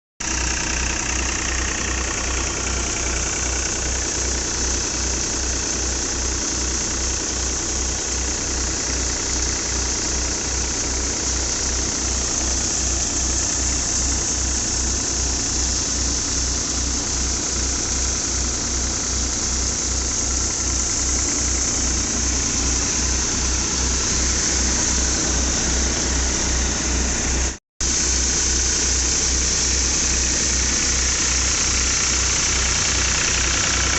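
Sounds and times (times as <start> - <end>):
tractor diesel engine running: 0.2 - 33.9
low throb pulsing: 0.6 - 27.5.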